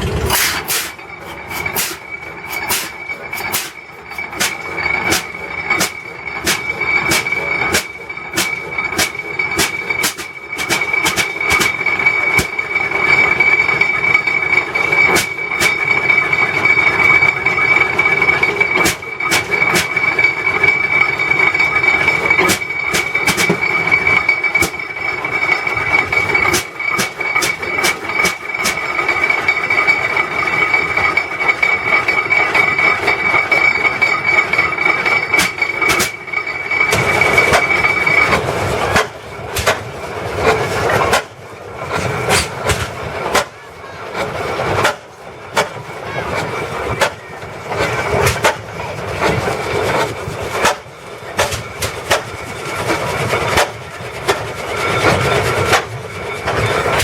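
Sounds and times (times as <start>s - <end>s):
high-pitched whine: 0.0s - 57.0s
tractor engine exhaust pops: 38.3s - 39.9s, 40.9s - 43.5s, 50.0s - 52.4s.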